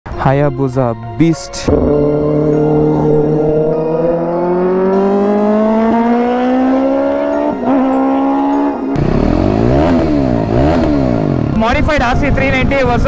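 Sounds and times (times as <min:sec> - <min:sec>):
motorcycle engine accelerating: 0:01.6 - 0:12.8
engine revving up and down: 0:01.7 - 0:11.6.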